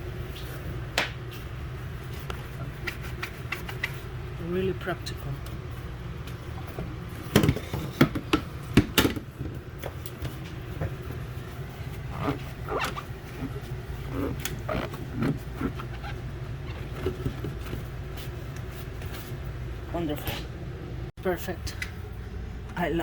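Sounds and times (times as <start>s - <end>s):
steady low hum: 0.0s - 23.0s
squeaky rubs: 11.8s - 17.9s.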